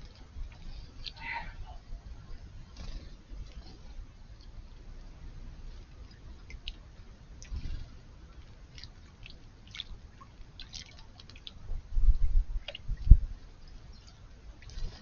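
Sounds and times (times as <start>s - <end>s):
birds splashing in water: 8.6s - 11.6s
dull low bumps: 11.7s - 13.4s.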